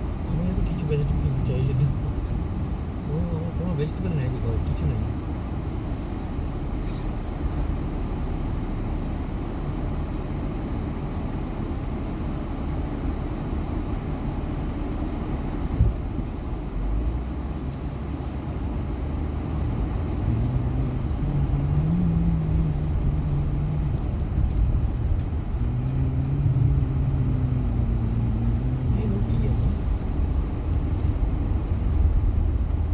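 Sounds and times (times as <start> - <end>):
truck road and engine rumble: 0.0 - 32.9
engine note rising and falling: 19.5 - 29.7.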